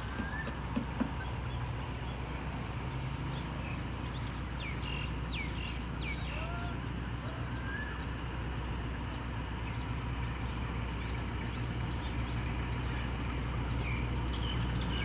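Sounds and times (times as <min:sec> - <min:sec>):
soft knocks: 0:00.0 - 0:01.4
birds chirping: 0:00.0 - 0:15.0
distant diesel locomotive rumble: 0:00.0 - 0:15.0.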